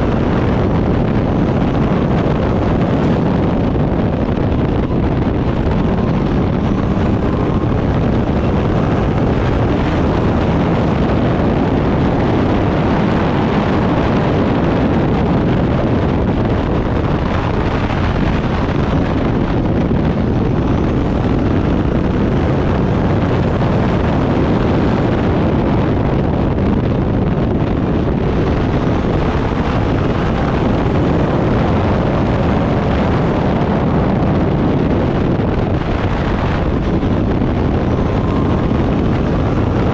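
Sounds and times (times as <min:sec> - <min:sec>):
race car engine running hard: 0:00.0 - 0:39.9
wind noise on microphone: 0:00.0 - 0:39.9.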